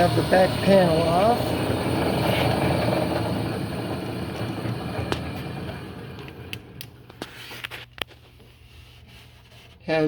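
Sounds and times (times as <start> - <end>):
bandsaw winding down: 0.0 - 7.0
sharp clicks and knocks: 1.0 - 7.3.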